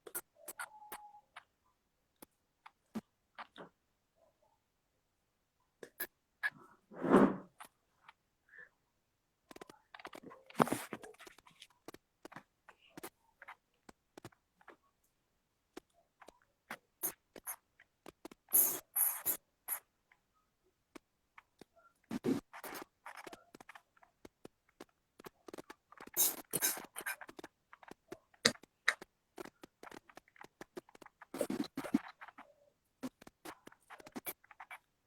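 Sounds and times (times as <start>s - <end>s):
small clicks and taps: 9.4s - 18.5s, 20.9s - 34.7s.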